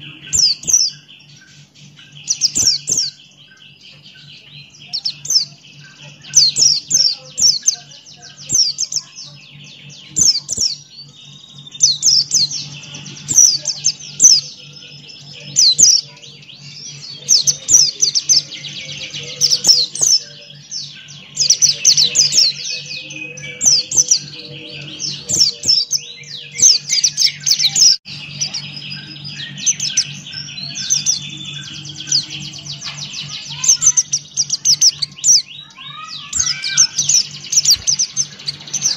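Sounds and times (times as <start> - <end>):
steady low hum: 0.0 - 35.8, 36.6 - 38.9
bird singing rapid high chirps: 0.0 - 38.9.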